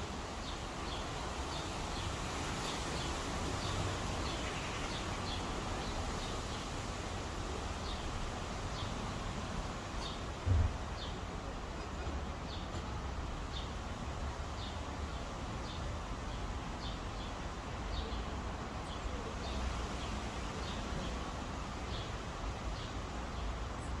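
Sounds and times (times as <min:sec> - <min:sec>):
outdoor hiss: 0:00.0 - 0:24.0
small birds chirping: 0:00.1 - 0:24.0
low thump: 0:10.4 - 0:10.8.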